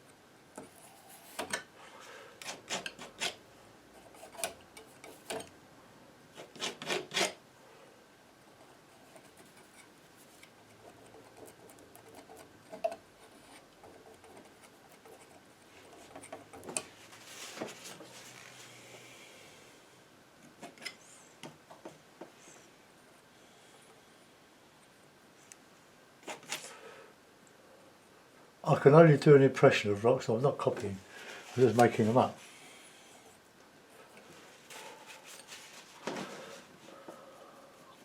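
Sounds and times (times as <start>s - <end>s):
palette knife scraping paint: 6.4s - 7.4s.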